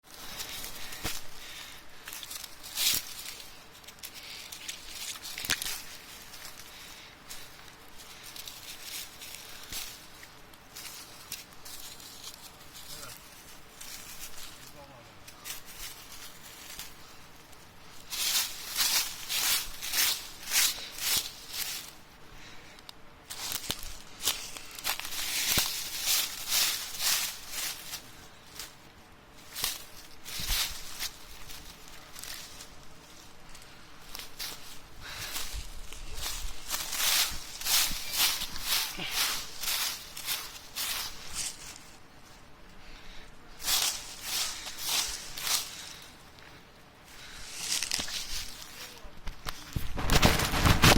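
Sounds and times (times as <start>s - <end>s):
dry plants rustling: 0.0s - 50.9s
plant stems snapping: 2.0s - 6.6s, 22.8s - 27.4s, 47.6s - 48.6s.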